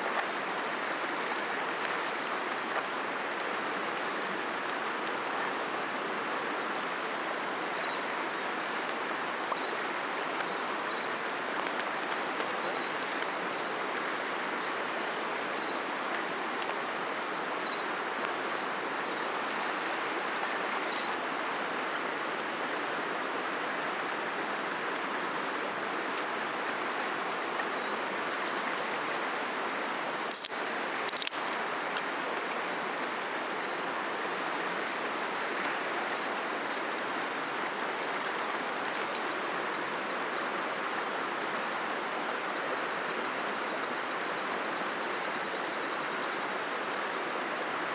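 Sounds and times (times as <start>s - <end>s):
river flowing: 0.0s - 47.9s
sharp clicks: 30.3s - 31.6s.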